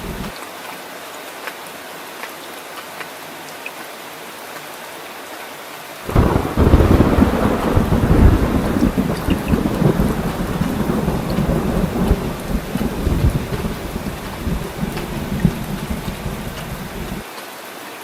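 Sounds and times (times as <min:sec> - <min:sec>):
thunder rumbling: 0:00.0 - 0:00.3, 0:06.1 - 0:17.2
rain falling: 0:00.0 - 0:18.0.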